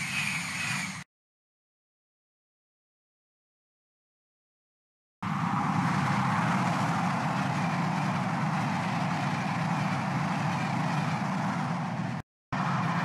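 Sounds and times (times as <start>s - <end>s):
high-speed train passing: 0.0s - 1.0s, 5.2s - 13.0s.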